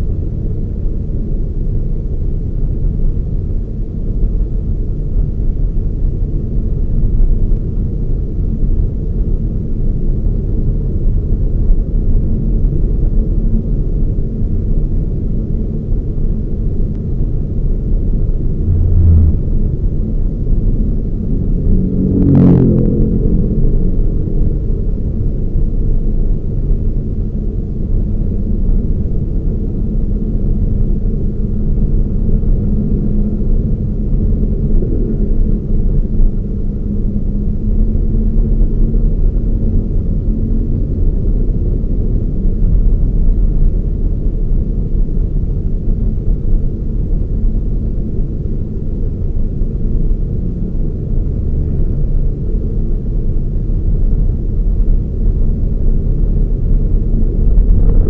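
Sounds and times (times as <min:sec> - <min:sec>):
car engine and road rumble: 0:00.0 - 0:58.0
faint even hum: 0:18.2 - 0:26.3.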